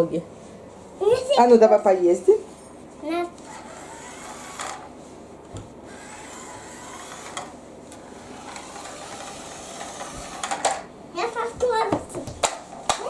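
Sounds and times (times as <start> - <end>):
toy car motor whirring: 3.4 - 4.9, 5.9 - 10.8.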